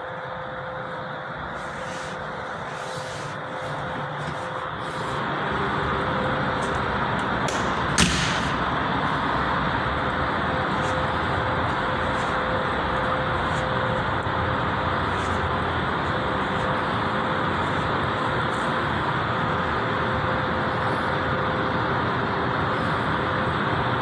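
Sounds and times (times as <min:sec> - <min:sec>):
faint steady hum: 0:00.0 - 0:24.0
rushing background noise: 0:00.0 - 0:24.0
sharp knock: 0:07.5 - 0:08.7.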